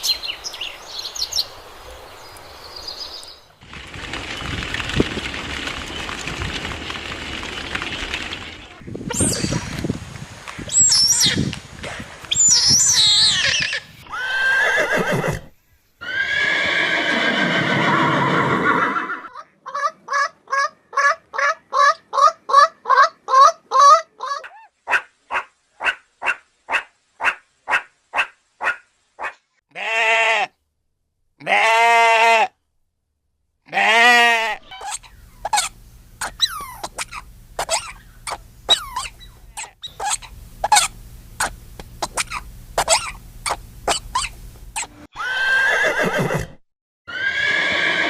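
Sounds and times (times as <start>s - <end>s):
drawn-out bleats: 29.7s - 30.6s, 31.4s - 32.6s, 33.7s - 35.1s
farm animals calling: 33.7s - 46.5s.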